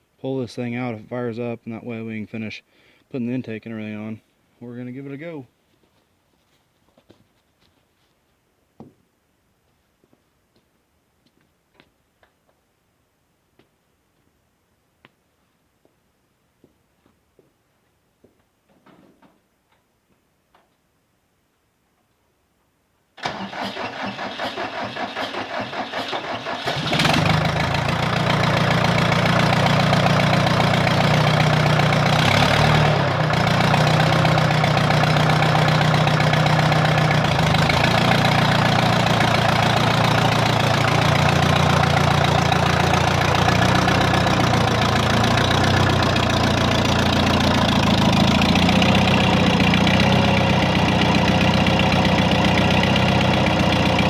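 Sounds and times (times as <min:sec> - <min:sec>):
diesel engine cranking and idling: 0:23.2 - 0:54.0.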